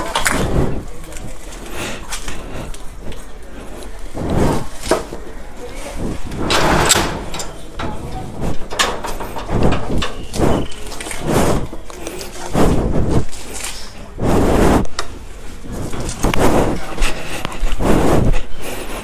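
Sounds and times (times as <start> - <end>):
knocks and thumps: 6.0 - 10.6.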